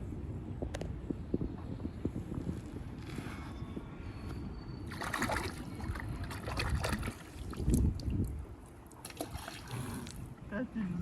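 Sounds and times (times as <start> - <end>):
wind rumble on microphone: 0.0 - 11.0
creek water trickling: 4.9 - 10.6.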